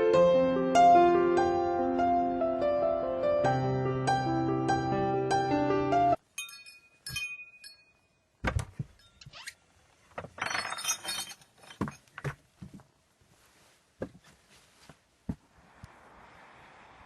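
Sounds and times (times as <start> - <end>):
light ringing clinks: 6.3 - 8.4, 9.0 - 9.3.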